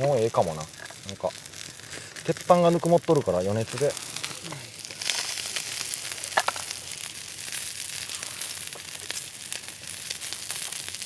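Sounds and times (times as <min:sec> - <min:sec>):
fat spitting and crackling: 0:00.0 - 0:10.9
steak sizzling on griddle: 0:00.0 - 0:11.0.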